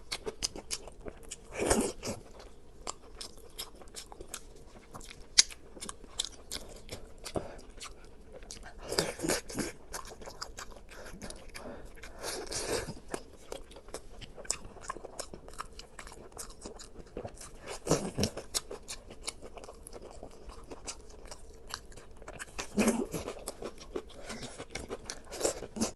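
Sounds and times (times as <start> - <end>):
person chewing crunchy food: 0.0 - 25.9.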